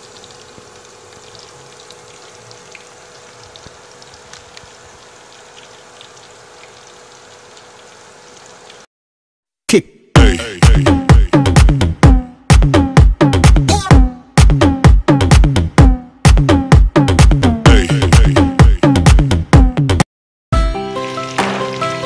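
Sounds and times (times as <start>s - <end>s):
pork frying in hot oil: 0.0s - 8.9s, 20.9s - 22.0s.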